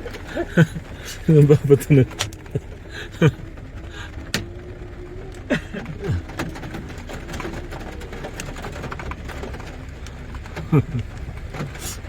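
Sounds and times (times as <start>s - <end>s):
hailstones ticking: 0.0s - 12.0s.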